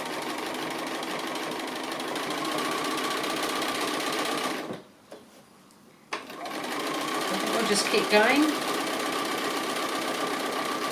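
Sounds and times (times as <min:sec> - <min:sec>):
sewing machine stitching: 0:00.0 - 0:04.7, 0:06.3 - 0:10.9.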